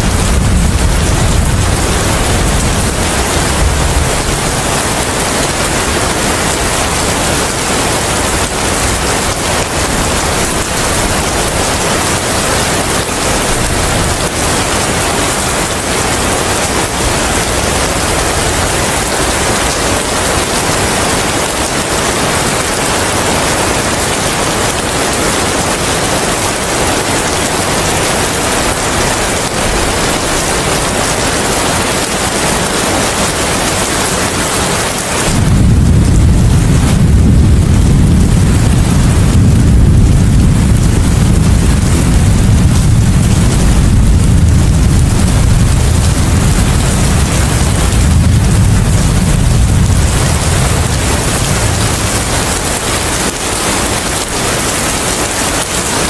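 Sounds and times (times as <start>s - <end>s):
deep low rumble: 0.0s - 5.7s, 35.3s - 54.2s
rain and wind hiss: 0.0s - 56.0s.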